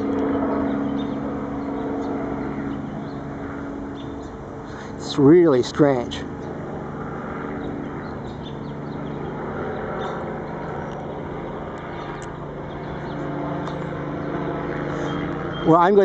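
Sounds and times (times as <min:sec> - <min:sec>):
helicopter rotor drone: 0:00.0 - 0:16.0.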